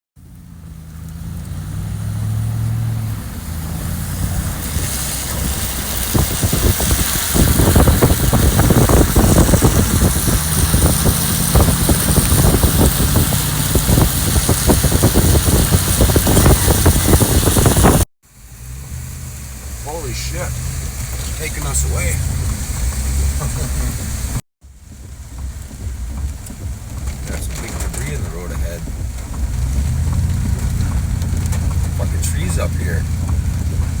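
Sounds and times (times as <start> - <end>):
vehicle engine running: 0.2 - 34.0
water splashing against vehicle: 0.2 - 34.0
rushing hiss: 3.5 - 24.4.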